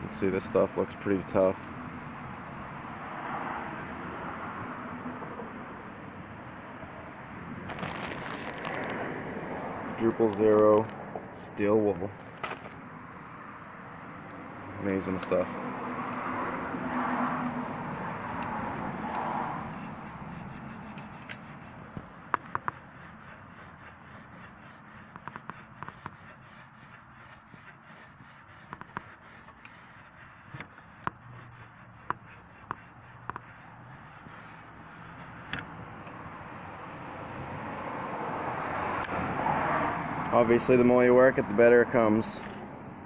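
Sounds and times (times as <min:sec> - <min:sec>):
steel wool scrubbing metal: 0:14.9 - 0:35.6
sharp ticks: 0:15.2 - 0:35.4.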